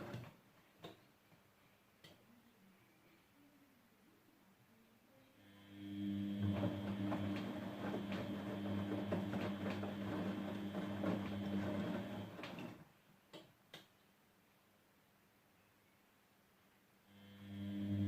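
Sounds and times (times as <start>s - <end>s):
washing machine humming: 5.7s - 12.8s, 17.4s - 18.0s.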